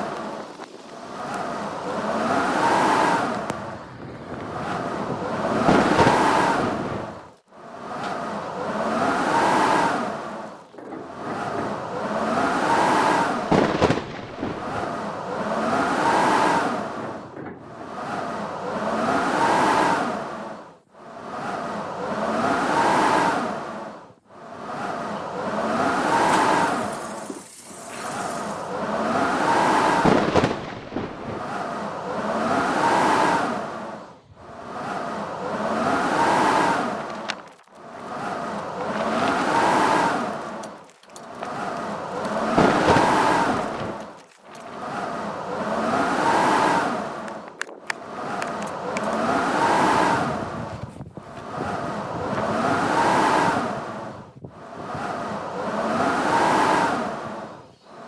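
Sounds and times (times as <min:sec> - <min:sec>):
wind buffeting microphone: 0:00.0 - 0:20.2, 0:24.6 - 0:57.7
blizzard wind gusting and whistling: 0:00.0 - 0:58.0
sharp cracks: 0:36.8 - 0:45.0.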